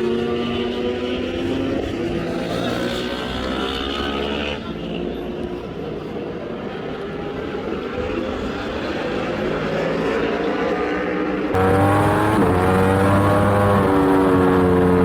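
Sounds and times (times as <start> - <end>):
superbike engine revving: 11.5 - 15.0.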